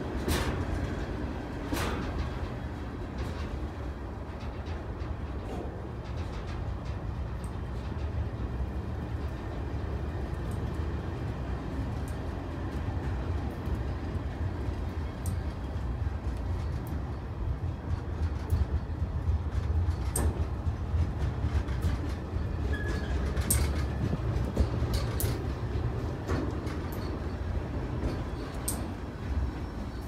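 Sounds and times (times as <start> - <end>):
train wheels rumbling on rail: 0.0 - 30.0
clicks and clanks: 1.6 - 8.2, 19.5 - 29.0
wheel squeal: 22.7 - 23.3.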